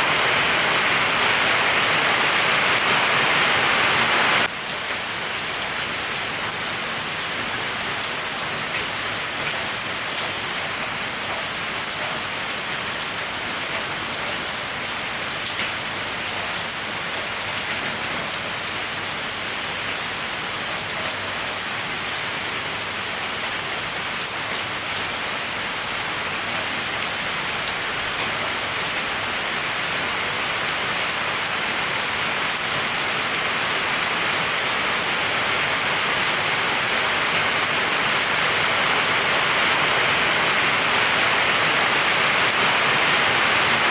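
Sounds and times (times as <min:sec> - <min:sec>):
steady rainfall: 0:00.0 - 0:43.9.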